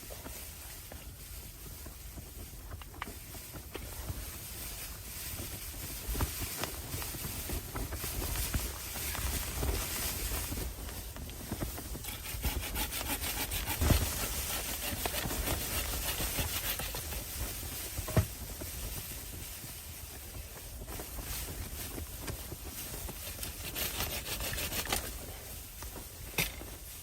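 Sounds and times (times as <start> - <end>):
scraping wood by hand: 12.0 - 17.3, 23.1 - 25.2.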